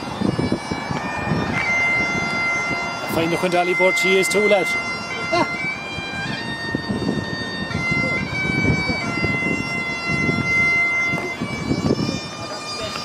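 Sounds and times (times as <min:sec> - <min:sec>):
bagpipes playing slow tune: 0:00.0 - 0:13.0
voices: 0:07.8 - 0:13.0.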